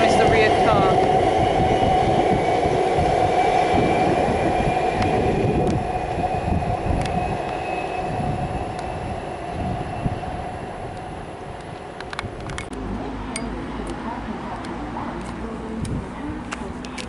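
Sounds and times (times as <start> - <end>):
electric train motor whine: 0.0 - 12.6
train rumble: 0.0 - 17.0.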